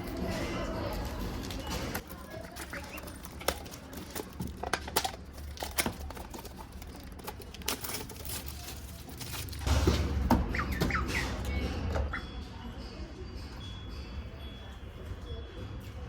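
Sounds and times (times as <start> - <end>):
snack packaging crinkling: 0.1 - 9.7.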